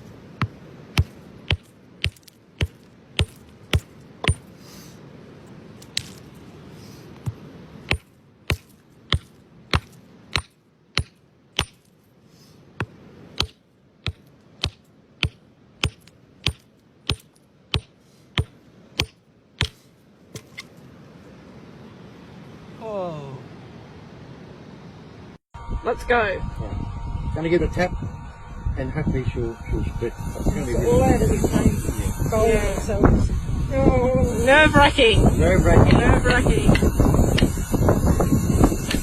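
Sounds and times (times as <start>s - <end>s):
hammer tapping on rock: 0.4s - 4.5s, 7.2s - 11.9s, 12.8s - 19.8s.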